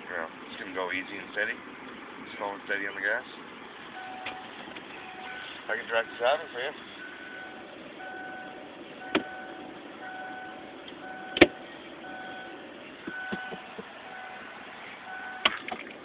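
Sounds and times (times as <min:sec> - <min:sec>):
vehicle hum: 0:00.0 - 0:16.0
reversing alarm beeping: 0:04.0 - 0:15.6.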